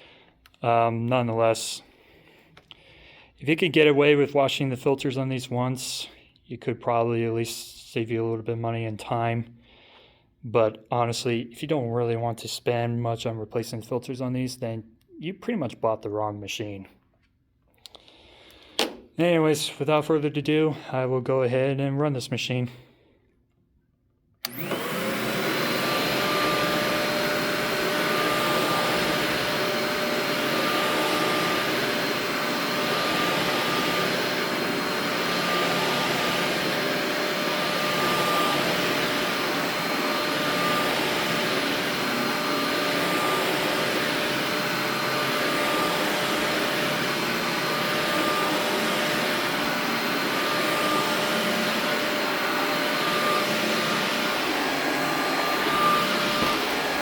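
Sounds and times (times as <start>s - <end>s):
vacuum cleaner motor whining: 24.4s - 57.0s.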